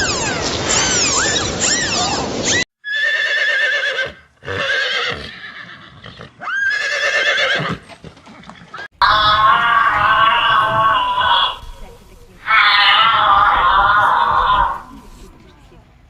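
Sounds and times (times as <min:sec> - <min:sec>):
horse whinnying: 0:02.8 - 0:07.8, 0:08.8 - 0:11.8, 0:12.4 - 0:15.2.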